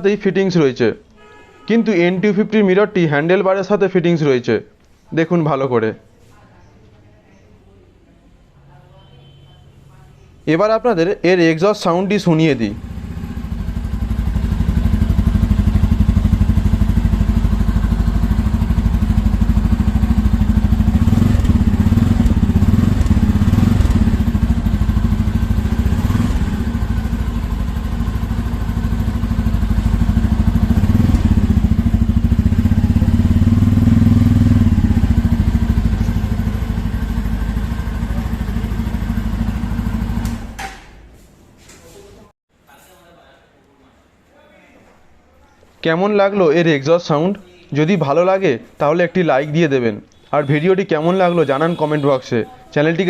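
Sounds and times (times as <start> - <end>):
motorcycle engine idling: 12.8 - 40.6.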